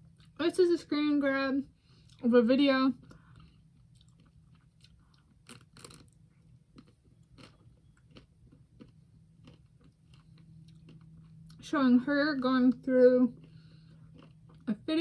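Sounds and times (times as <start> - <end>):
faint chewing and biting: 0.0 - 0.4, 1.8 - 2.3, 3.0 - 11.7, 13.3 - 14.8
chocolate shell crunching: 3.8 - 11.6.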